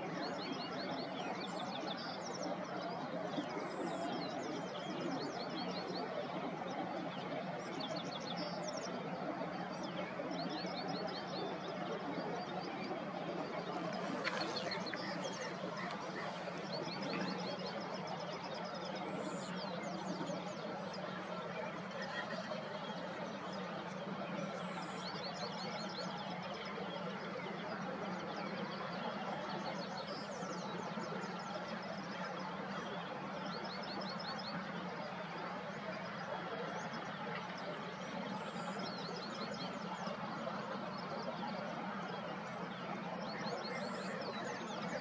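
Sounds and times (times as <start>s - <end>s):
songbirds chirping: 0.0s - 45.0s.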